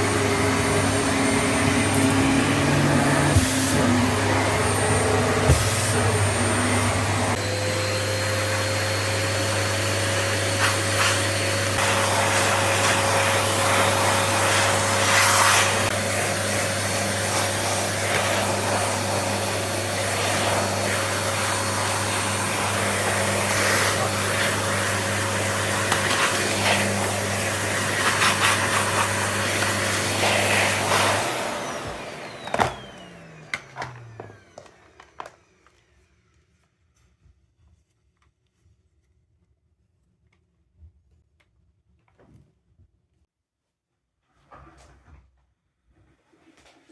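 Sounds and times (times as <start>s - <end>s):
nozzle scraping floor: 0.0s - 7.6s, 8.6s - 36.0s
vacuum cleaner running: 0.0s - 36.5s.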